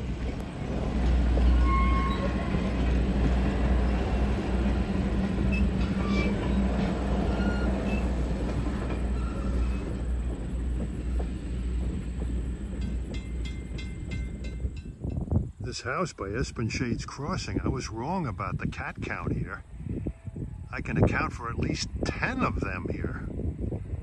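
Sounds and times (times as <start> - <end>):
train wheels rumbling on rails: 0.0 - 17.2.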